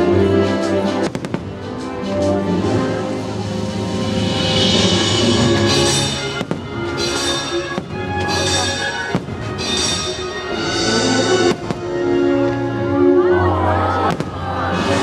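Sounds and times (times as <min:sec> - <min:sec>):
loud show music: 0:00.0 - 0:15.0
fireworks bangs: 0:01.0 - 0:01.7, 0:06.2 - 0:10.2, 0:11.3 - 0:12.0, 0:14.0 - 0:14.7.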